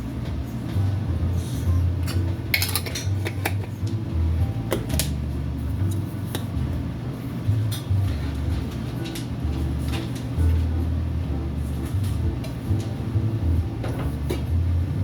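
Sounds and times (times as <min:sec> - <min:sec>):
utensils and dishes clinking: 0:01.6 - 0:04.0.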